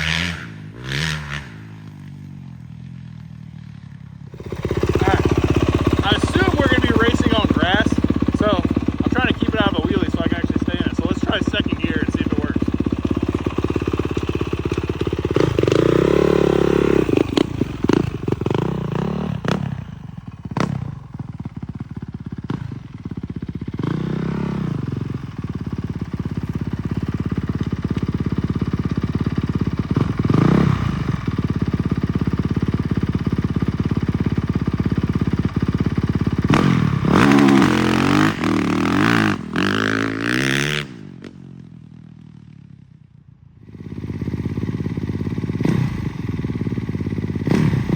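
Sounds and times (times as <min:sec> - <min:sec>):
dirt bike engines revving: 0:00.0 - 0:02.7, 0:04.3 - 0:21.0, 0:36.3 - 0:41.2, 0:43.7 - 0:47.9.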